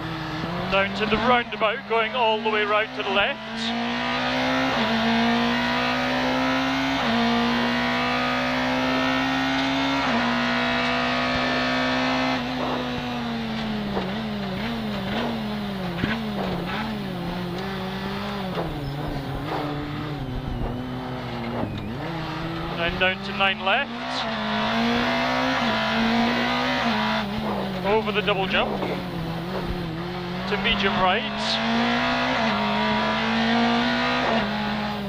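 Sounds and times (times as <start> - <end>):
rally car engine under load: 0.0 - 35.0
sharp knocks: 18.5 - 19.7.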